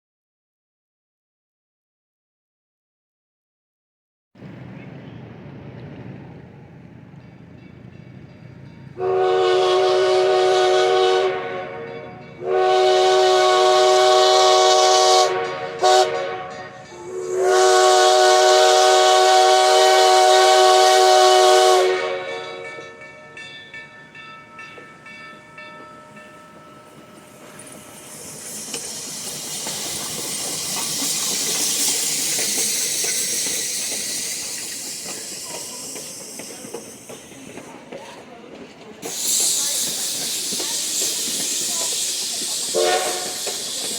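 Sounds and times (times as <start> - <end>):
steam locomotive chime whistle: 7.2 - 37.6, 39.0 - 43.9
loud steady steam hiss: 12.4 - 22.2, 26.8 - 43.9.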